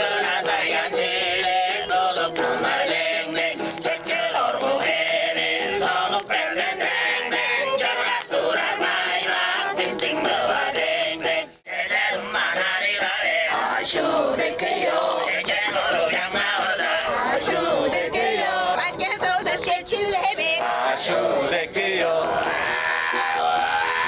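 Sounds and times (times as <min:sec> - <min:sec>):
group throat singing: 0:00.0 - 0:19.7, 0:20.3 - 0:24.0.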